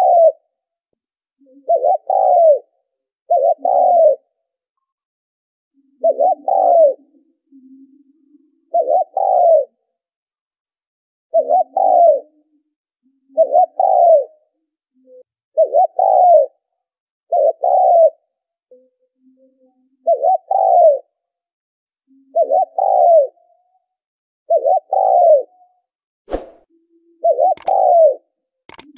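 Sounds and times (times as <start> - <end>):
dove cooing: 0.0 - 0.4, 1.6 - 2.7, 3.3 - 4.2, 6.0 - 7.2, 8.7 - 9.7, 11.3 - 12.3, 13.4 - 14.3, 15.6 - 16.6, 17.3 - 18.2, 20.0 - 21.1, 22.3 - 23.4, 24.5 - 25.5, 27.2 - 28.8.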